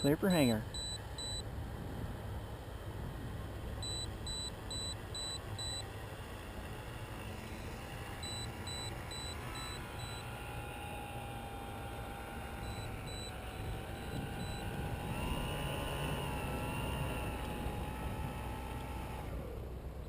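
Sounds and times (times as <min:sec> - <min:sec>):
electric motor and propeller whining: 0:00.0 - 0:20.0
wind rumble on microphone: 0:01.5 - 0:03.8, 0:13.1 - 0:18.7.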